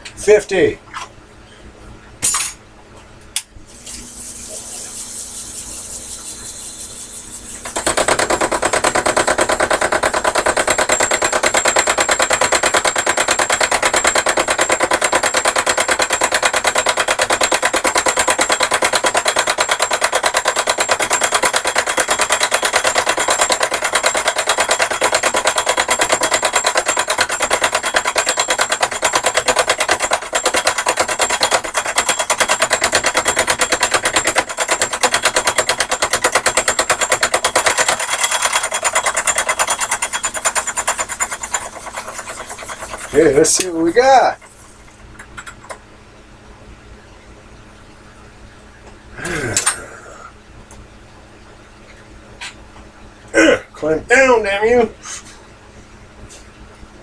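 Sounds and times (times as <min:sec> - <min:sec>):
lathe tool fast clatter: 0:04.5 - 0:44.6.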